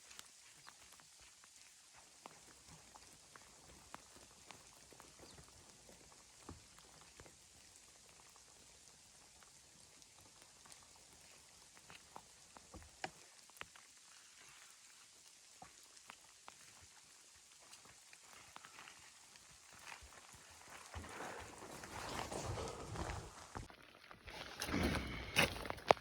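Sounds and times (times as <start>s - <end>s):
faint crackles and ticks: 0.0s - 26.0s.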